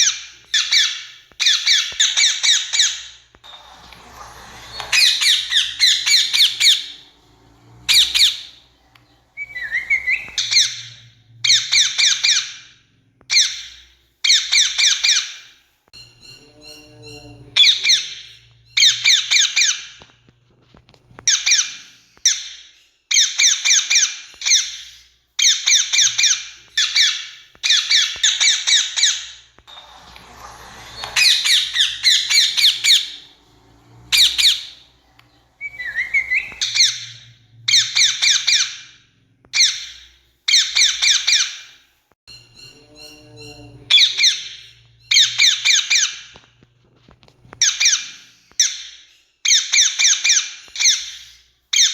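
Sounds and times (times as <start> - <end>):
parakeet screeching squawks: 0.0 - 8.7, 9.4 - 12.7, 21.2 - 35.0, 35.6 - 41.7, 42.5 - 46.4.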